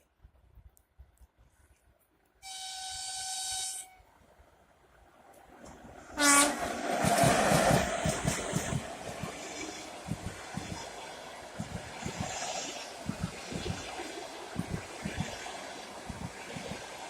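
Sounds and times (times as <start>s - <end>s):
locomotive horn: 2.4s - 4.1s, 6.2s - 6.7s
train wheels rumbling on rails: 5.4s - 17.0s.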